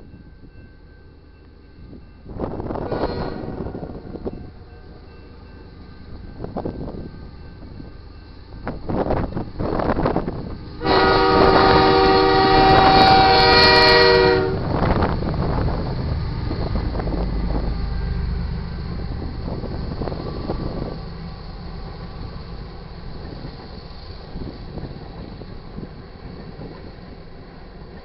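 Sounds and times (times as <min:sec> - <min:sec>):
diesel locomotives rumbling: 0:00.0 - 0:28.0
locomotive air horn blast: 0:02.9 - 0:04.0, 0:10.8 - 0:14.7.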